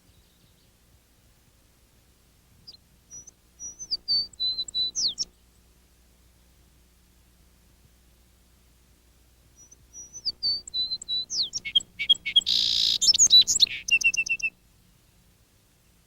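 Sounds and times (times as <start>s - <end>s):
songbird singing: 0.0s - 0.9s, 2.6s - 5.8s, 9.4s - 16.0s.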